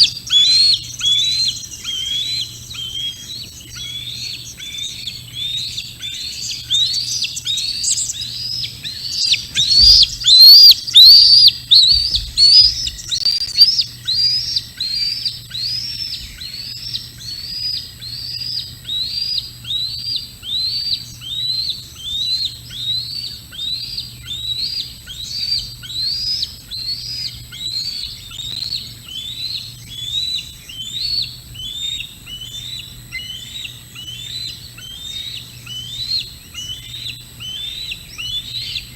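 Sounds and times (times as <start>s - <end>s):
bird calling: 0.0s - 38.9s
low thumps: 9.5s - 13.4s.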